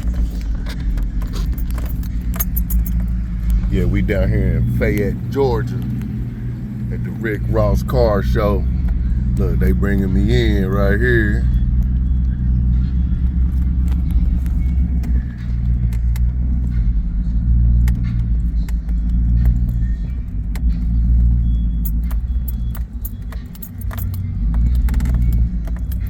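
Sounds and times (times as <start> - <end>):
sharp rattling clicks: 0.0 - 10.9, 17.8 - 26.0
vehicle engine rumble: 0.0 - 26.0.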